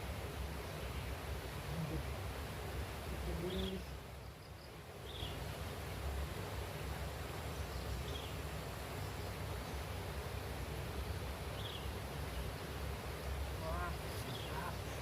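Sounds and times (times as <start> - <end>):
steady background hiss: 0.0 - 15.0
low bird call: 13.6 - 15.0.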